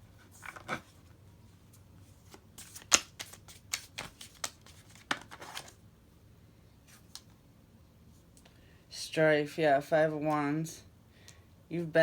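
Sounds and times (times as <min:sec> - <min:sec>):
cards snapping and rustling: 0:02.3 - 0:05.8.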